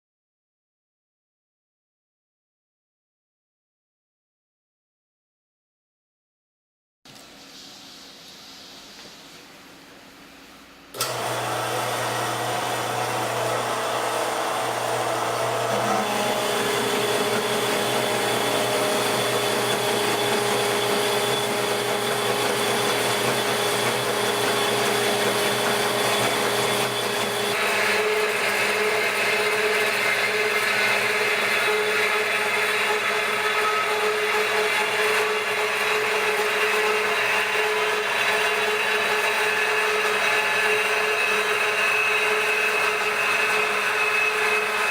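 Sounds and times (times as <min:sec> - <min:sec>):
band saw cutting steel pipe: 0:11.0 - 0:44.9.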